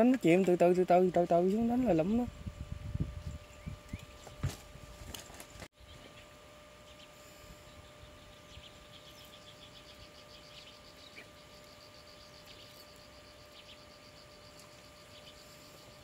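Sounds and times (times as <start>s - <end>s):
faint steady hum: 0.0s - 16.0s
cricket chirping: 9.0s - 16.0s.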